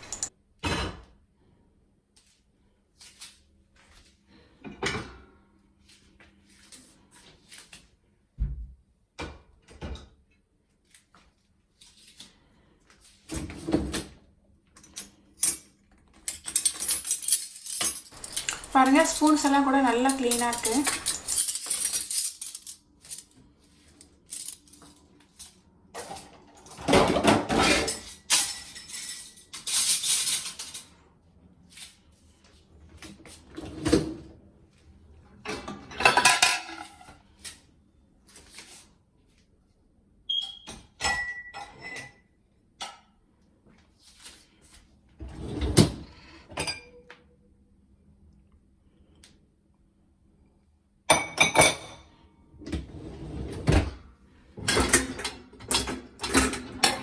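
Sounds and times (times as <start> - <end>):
dishes and cutlery clinking: 0.0 - 1.0, 16.4 - 22.6, 35.5 - 37.2, 41.0 - 42.2, 46.5 - 47.1, 51.1 - 52.1.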